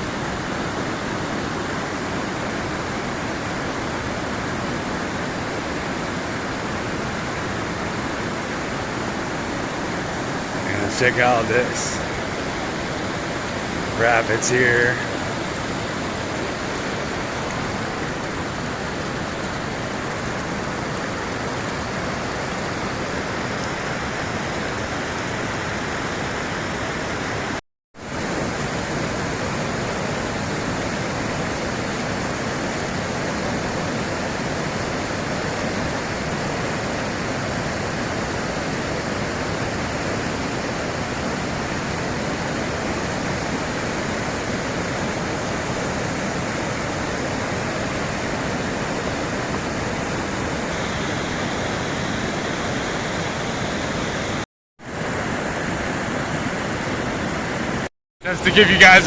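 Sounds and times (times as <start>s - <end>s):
river rapids rushing: 0.0s - 23.5s, 38.4s - 59.0s.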